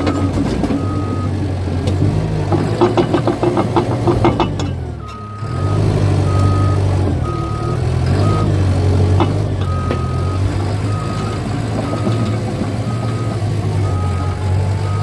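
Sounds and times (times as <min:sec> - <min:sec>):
reversing alarm beeping: 0:00.0 - 0:01.4, 0:05.0 - 0:15.0
bulldozer diesel engine: 0:00.0 - 0:15.0
steel tracks clanking: 0:01.9 - 0:05.9, 0:08.1 - 0:15.0.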